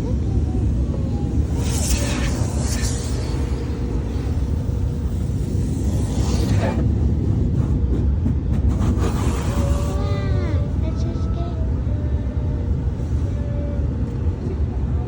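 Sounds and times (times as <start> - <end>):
car wash low rumble: 0.0 - 15.0
high hiss: 1.3 - 6.8.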